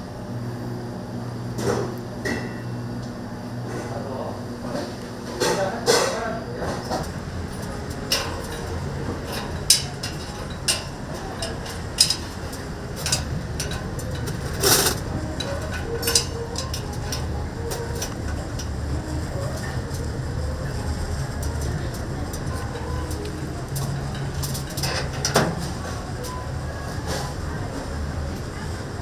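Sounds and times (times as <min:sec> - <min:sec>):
low mechanical hum: 0:00.0 - 0:29.0
wood fire crackling and popping: 0:06.6 - 0:28.5.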